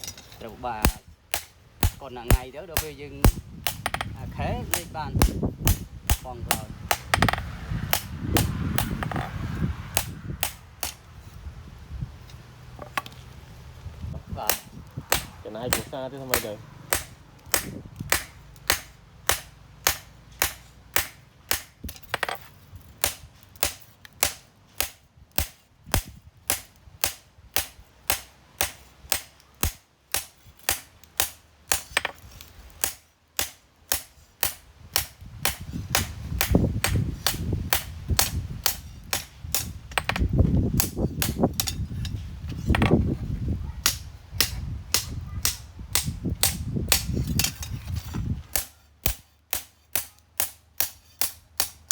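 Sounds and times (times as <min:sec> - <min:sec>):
hammer striking steel on anvil: 0:00.0 - 0:09.3, 0:09.9 - 0:11.0, 0:14.4 - 0:22.3, 0:48.5 - 0:51.9.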